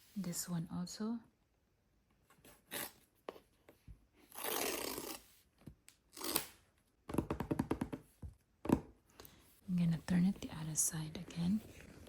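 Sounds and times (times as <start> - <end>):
cardboard tear strip ripping: 4.3 - 5.2, 6.1 - 6.6.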